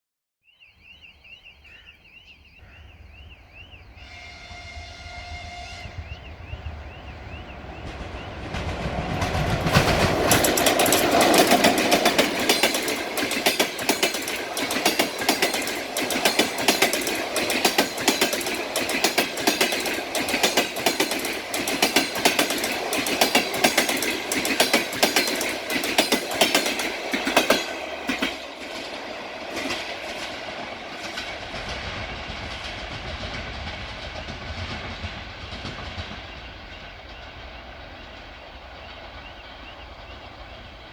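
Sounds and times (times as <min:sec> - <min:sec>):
train rumble: 0:02.6 - 0:40.9
train horn blast: 0:03.9 - 0:07.0
wheels clacking over rail joints: 0:06.7 - 0:40.9.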